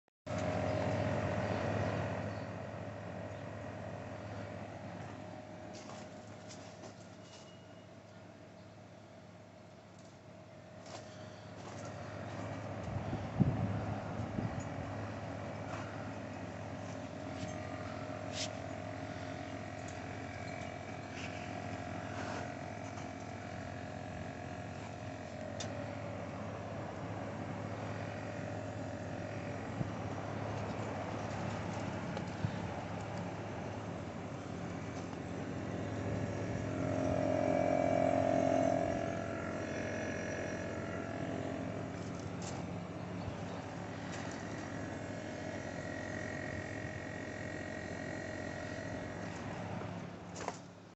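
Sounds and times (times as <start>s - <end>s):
heat pump compressor humming: 0.3s - 50.9s
loud tonal moan: 36.2s - 41.3s.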